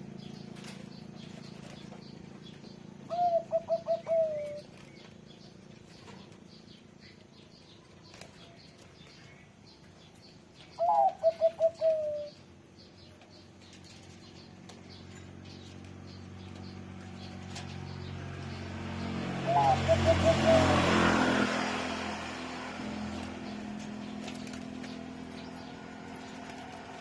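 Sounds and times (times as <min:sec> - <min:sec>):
dove cooing song: 0:00.3 - 0:06.3, 0:10.6 - 0:12.6, 0:16.6 - 0:27.0.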